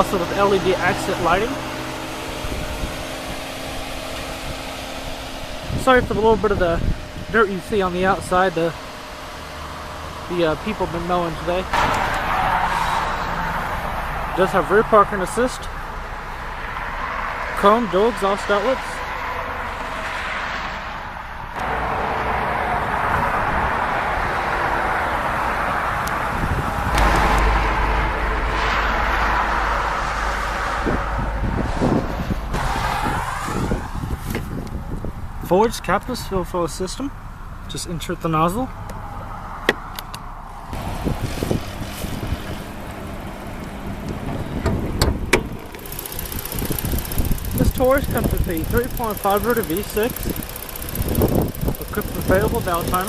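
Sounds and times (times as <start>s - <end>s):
wind buffeting microphone: 0.0s - 11.0s, 22.7s - 35.4s, 38.9s - 49.1s, 50.1s - 53.0s
car exhaust idling rumble: 0.0s - 20.0s, 21.2s - 53.0s
sharp clicks: 43.6s - 53.0s.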